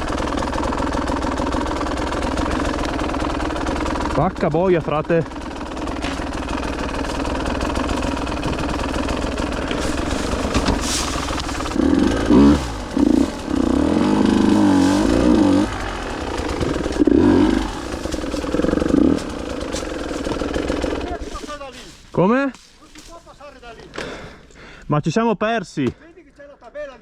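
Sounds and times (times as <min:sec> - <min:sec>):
two-stroke motorcycle engine revving: 0:00.0 - 0:21.5.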